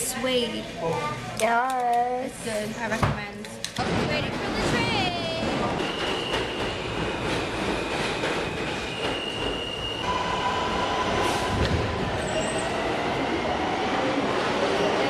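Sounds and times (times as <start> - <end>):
train rumble: 3.8 - 15.0
train wheels squealing: 5.8 - 13.0.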